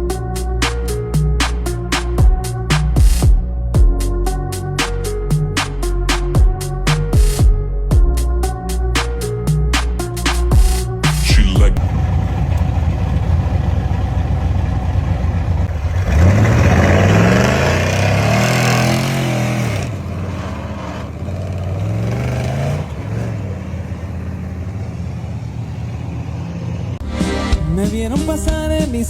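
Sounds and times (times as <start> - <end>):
pickup truck engine revving: 11.8 - 29.0.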